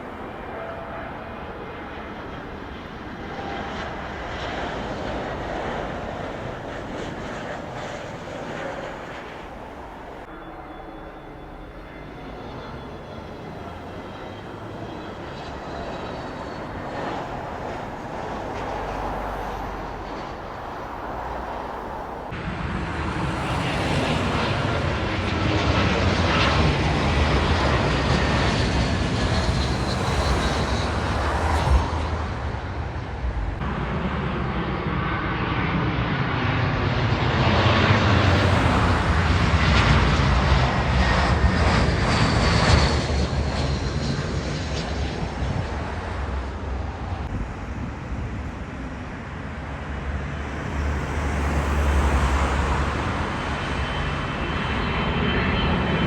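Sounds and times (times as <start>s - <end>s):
jet airliner engines: 0.0s - 56.0s.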